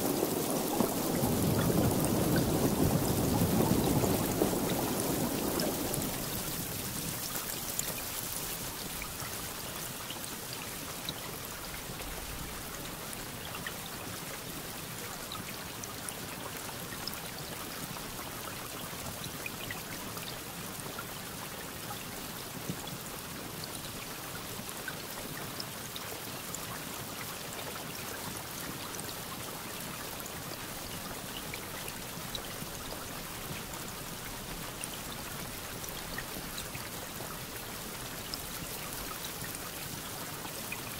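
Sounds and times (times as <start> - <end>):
thunder rumble: 0.0 - 7.2
steady rainfall: 0.0 - 40.9.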